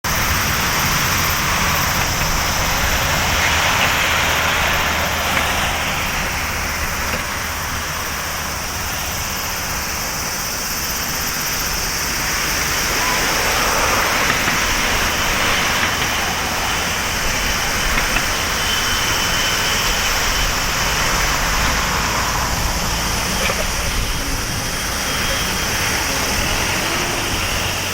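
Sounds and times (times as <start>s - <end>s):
jet engines running: 0.0s - 27.9s
faint high whine: 0.1s - 27.9s.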